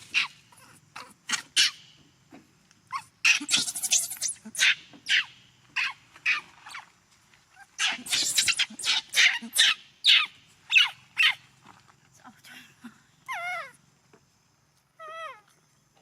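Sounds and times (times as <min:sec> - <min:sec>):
infant monkey crying: 0:00.0 - 0:01.9, 0:02.9 - 0:06.8, 0:07.6 - 0:11.4, 0:13.2 - 0:13.8.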